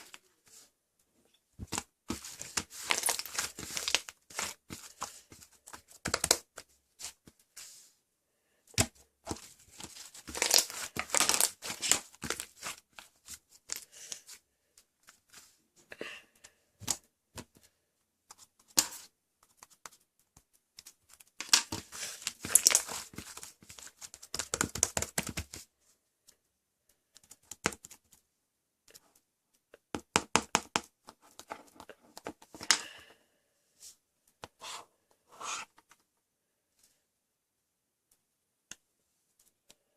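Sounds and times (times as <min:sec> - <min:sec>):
crinkling and tearing: 0:01.7 - 0:06.4, 0:09.4 - 0:14.2, 0:20.8 - 0:24.9.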